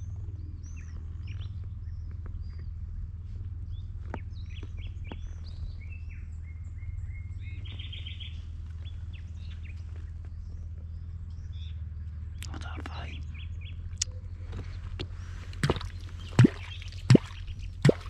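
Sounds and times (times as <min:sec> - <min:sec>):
songbirds chirping and whistling: 0:00.0 - 0:18.0
steady low rumble: 0:00.0 - 0:18.0
bird trill: 0:15.2 - 0:18.0.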